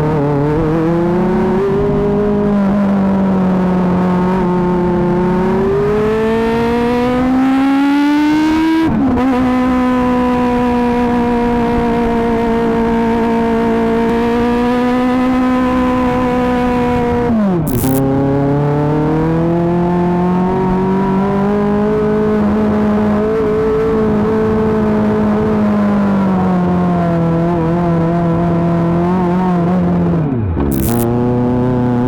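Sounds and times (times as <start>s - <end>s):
motorcycle engine revving high: 12.8s - 21.9s, 30.4s - 32.0s.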